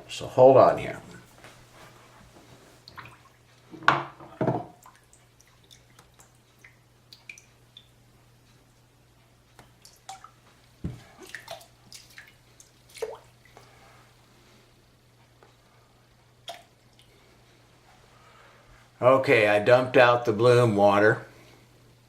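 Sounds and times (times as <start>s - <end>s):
water drips and splashes: 2.8s - 3.5s, 4.7s - 8.0s, 9.6s - 13.7s, 16.4s - 17.2s.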